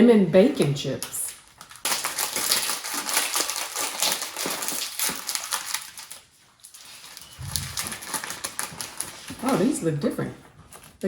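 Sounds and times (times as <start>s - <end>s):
plastic chip bag crinkling: 1.0s - 10.0s.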